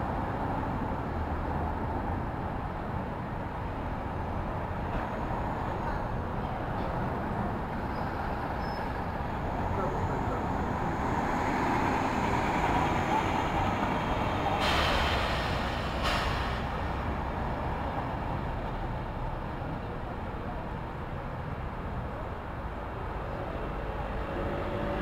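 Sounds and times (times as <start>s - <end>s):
rumble of passing vehicles: 0.0s - 25.0s
short burst of hiss: 14.6s - 16.6s.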